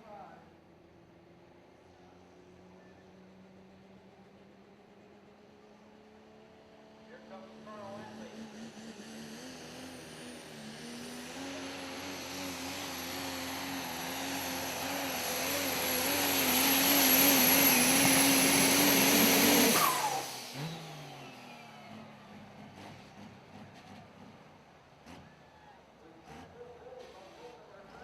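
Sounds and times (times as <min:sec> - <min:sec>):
diesel truck engine at full throttle: 0:00.0 - 0:28.0
falling engine whine: 0:07.1 - 0:24.6.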